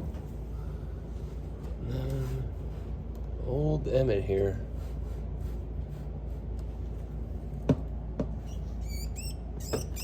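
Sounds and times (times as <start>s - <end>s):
rat squeaking: 8.4s - 10.0s.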